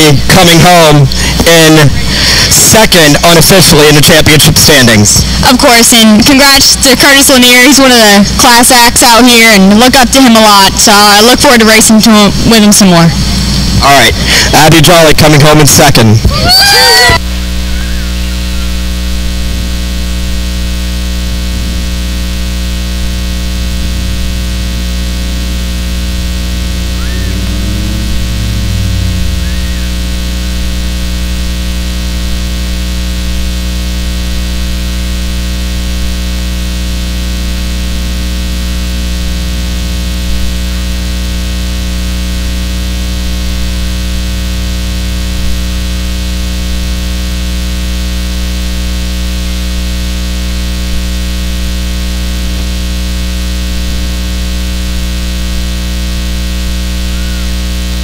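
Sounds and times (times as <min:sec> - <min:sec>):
loud steady hum: 0:00.0 - 0:58.0
steady electrical buzz with hiss: 0:17.3 - 0:27.3, 0:29.9 - 0:58.0.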